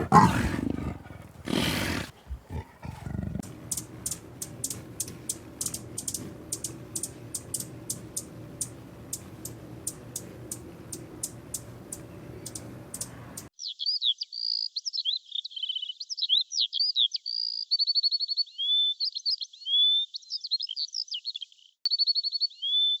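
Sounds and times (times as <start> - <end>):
songbird singing: 0.0 - 23.0
sharp ticks: 3.4 - 13.5.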